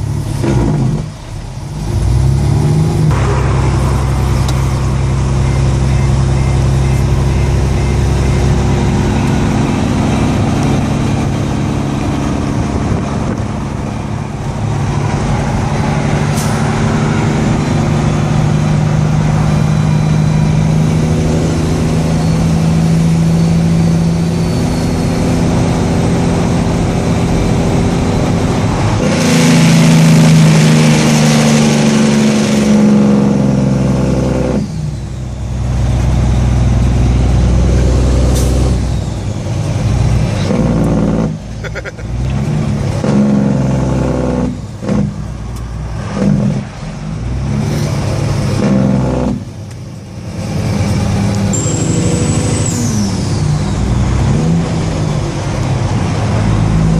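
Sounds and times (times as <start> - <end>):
engine braking: 0.0 - 13.7, 15.2 - 55.3
diesel truck engine running: 0.0 - 56.9.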